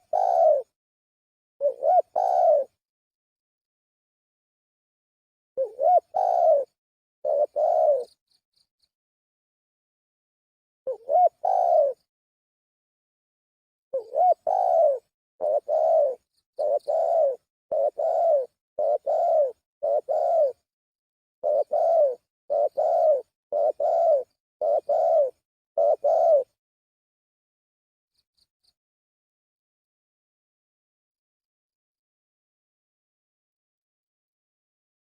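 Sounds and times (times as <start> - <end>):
dove cooing: 0.0 - 0.7, 1.6 - 2.8, 5.6 - 8.2, 10.9 - 12.1, 13.9 - 20.7, 21.4 - 26.6.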